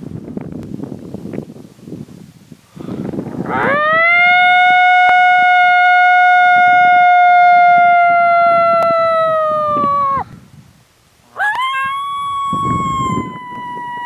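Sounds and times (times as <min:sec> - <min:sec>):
wind buffeting microphone: 0:00.0 - 0:14.0
coyote howl predator call: 0:03.5 - 0:10.2, 0:11.3 - 0:14.0.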